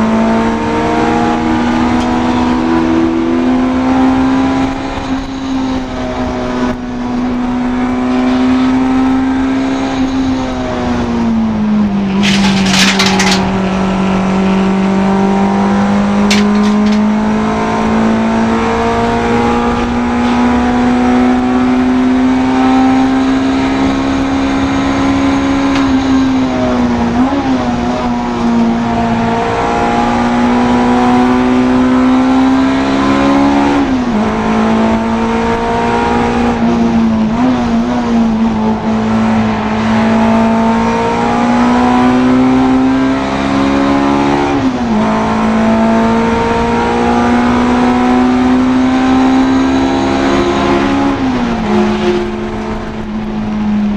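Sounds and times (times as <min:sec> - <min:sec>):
race car engine at high revs: 0:00.0 - 0:53.9
rattling noise: 0:12.1 - 0:14.2, 0:16.2 - 0:17.3.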